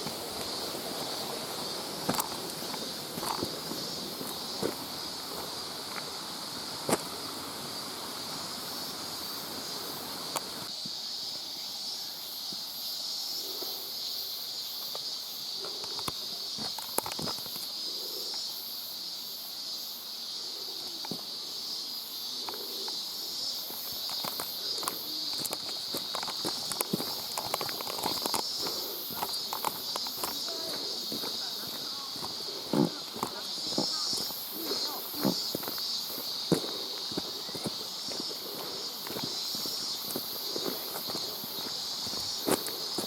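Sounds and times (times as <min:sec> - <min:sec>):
footsteps on wet rocky trail: 0:00.0 - 0:07.6, 0:23.7 - 0:43.0.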